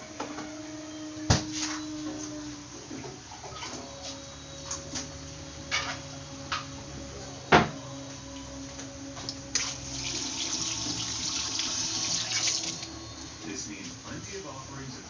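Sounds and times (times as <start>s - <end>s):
sink tap running: 9.5s - 13.0s.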